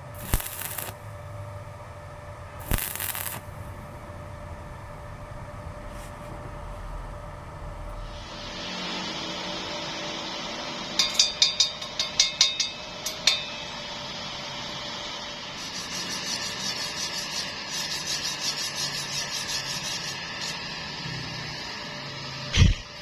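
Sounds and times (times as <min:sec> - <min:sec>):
steady hiss: 0:00.0 - 0:01.3, 0:02.6 - 0:04.0
sharp metal taps: 0:11.0 - 0:13.5.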